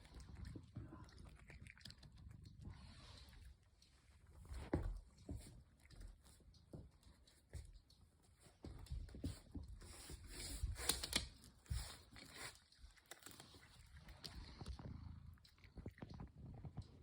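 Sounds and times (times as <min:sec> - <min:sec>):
cat paws tapping on hard floor: 0:02.7 - 0:12.6.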